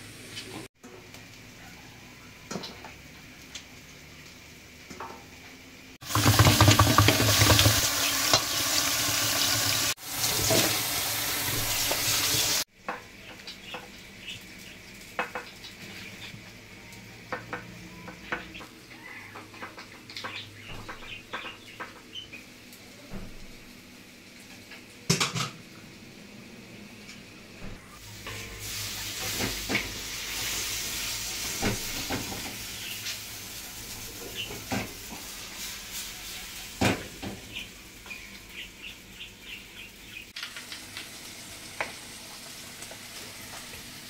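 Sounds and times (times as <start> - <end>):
food sizzling in a pan: 6.0 - 12.7, 28.0 - 44.0.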